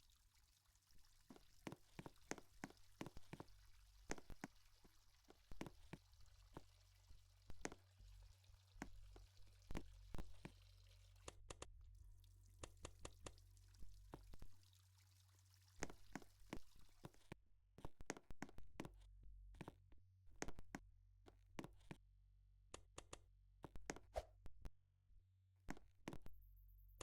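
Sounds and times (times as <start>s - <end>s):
low steady hum: 0.0s - 17.1s
faint irregular clicks: 0.0s - 19.8s, 22.7s - 24.0s.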